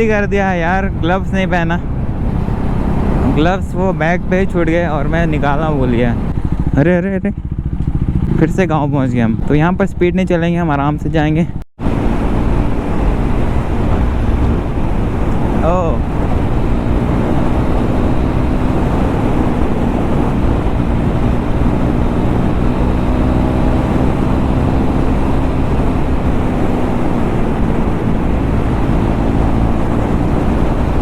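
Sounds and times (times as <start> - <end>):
motorcycle engine cruising: 0.0 - 31.0.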